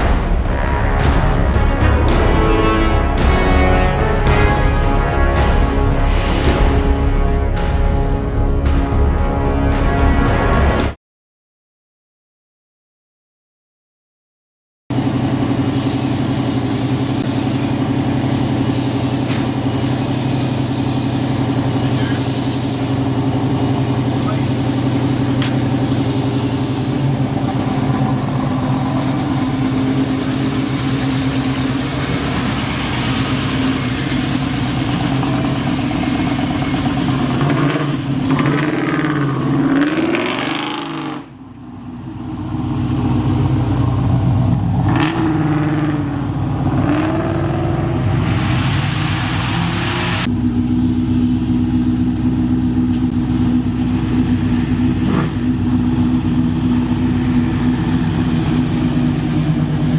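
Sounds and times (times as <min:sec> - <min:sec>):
car engine revving: 0:00.0 - 0:11.0, 0:15.0 - 0:59.9.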